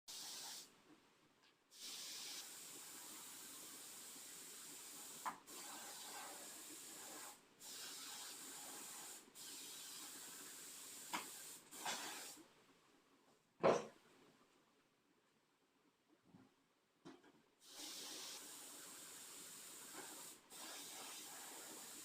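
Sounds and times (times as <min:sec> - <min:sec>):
steady hiss: 0:00.1 - 0:00.8, 0:01.7 - 0:12.5, 0:17.6 - 0:22.0.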